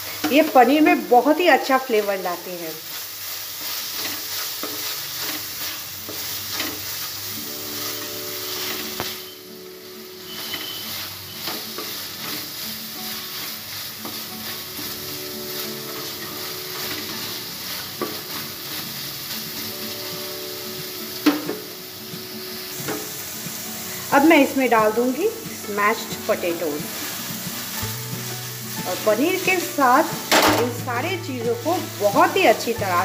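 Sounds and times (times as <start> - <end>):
food sizzling in a pan: 0.0 - 33.0
spatula scraping and tapping: 3.9 - 6.8, 8.7 - 9.2, 15.9 - 18.9.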